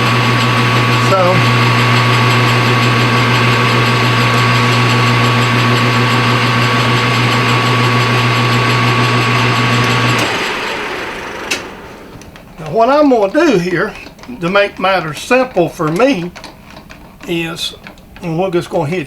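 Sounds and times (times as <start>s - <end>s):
metal lathe running: 0.0s - 16.5s
click: 11.5s - 12.5s.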